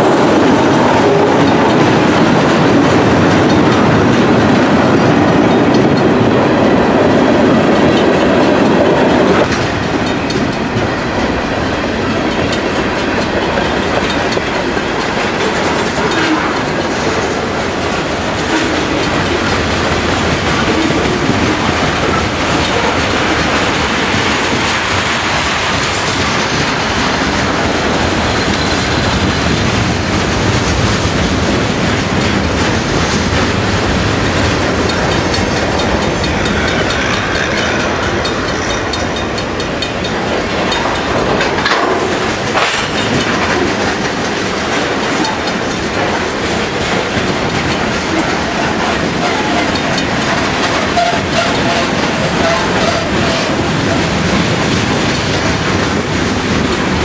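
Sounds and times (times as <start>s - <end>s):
train wheels rumbling and clattering: 0.0s - 57.0s.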